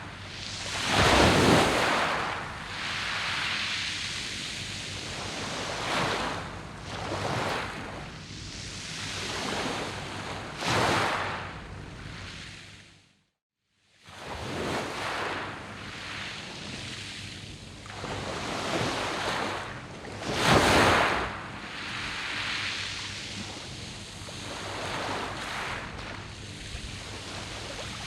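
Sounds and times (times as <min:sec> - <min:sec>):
waves washing over pebble beach: 0:00.7 - 0:04.0.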